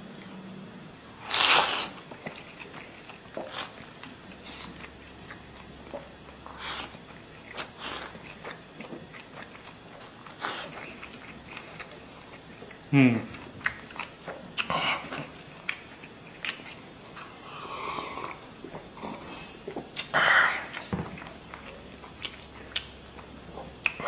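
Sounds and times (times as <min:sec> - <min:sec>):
person chewing food: 0:01.2 - 0:24.0.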